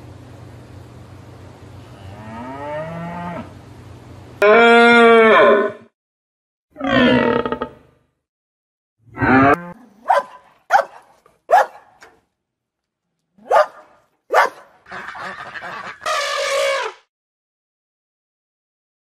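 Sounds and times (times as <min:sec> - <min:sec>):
dog barking: 0:09.9 - 0:12.1, 0:13.4 - 0:14.8
raspy dog call: 0:13.4 - 0:17.0.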